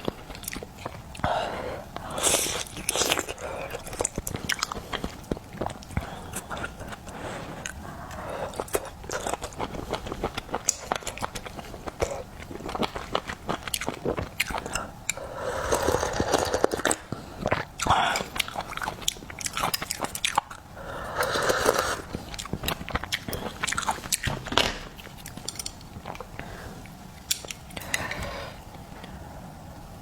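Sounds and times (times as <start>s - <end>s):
wet chewing and biting: 2.0s - 20.7s, 21.3s - 26.4s.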